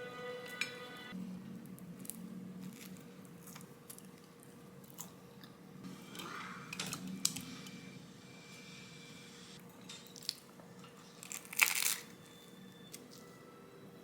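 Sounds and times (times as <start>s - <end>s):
person chewing crunchy food: 1.9s - 5.6s, 11.1s - 12.1s.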